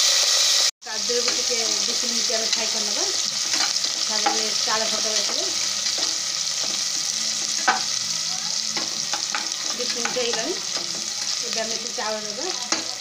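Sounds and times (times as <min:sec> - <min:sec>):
vegetables sizzling in hot ghee: 0:00.0 - 0:13.0
spatula scraping pan: 0:01.2 - 0:08.0, 0:08.6 - 0:13.0
spatula knocking pan: 0:03.4 - 0:08.0, 0:08.7 - 0:11.4, 0:12.5 - 0:13.0.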